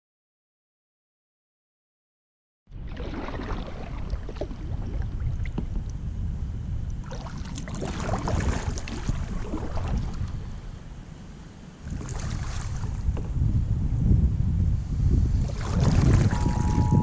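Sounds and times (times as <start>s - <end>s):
wind buffeting microphone: 2.7s - 17.0s
water splashing: 2.8s - 5.6s, 7.0s - 10.4s, 11.8s - 13.1s, 15.4s - 17.0s.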